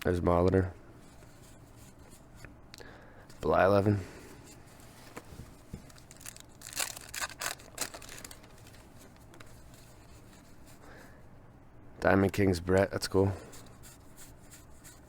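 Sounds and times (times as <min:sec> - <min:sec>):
cardboard cards rustling: 0:04.6 - 0:10.6.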